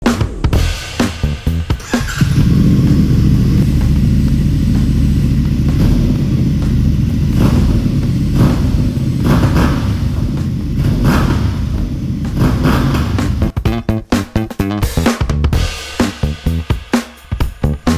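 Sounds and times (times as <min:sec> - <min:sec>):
motorcycle engine exhaust note: 0:00.6 - 0:14.8.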